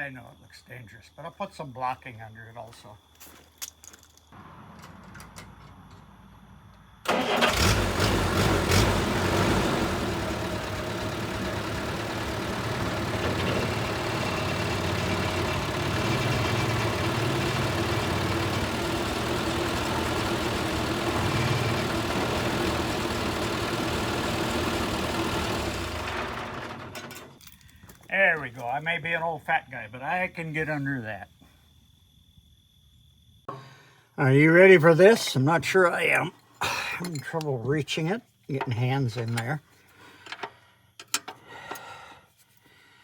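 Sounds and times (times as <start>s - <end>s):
motor running: 9.5s - 26.9s.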